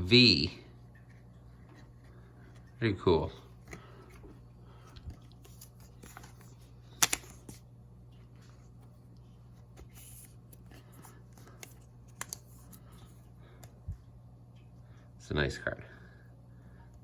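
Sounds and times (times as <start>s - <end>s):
cards rustling and sliding: 3.5s - 13.8s.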